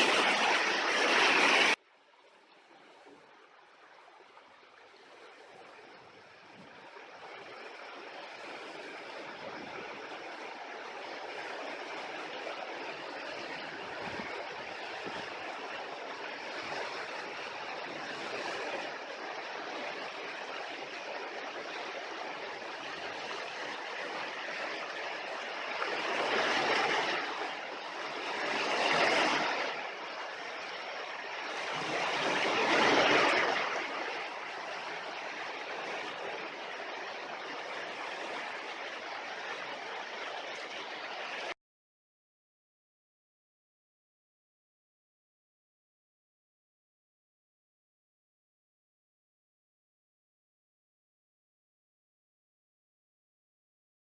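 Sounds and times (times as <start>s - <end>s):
running water rushing: 0.0s - 41.6s.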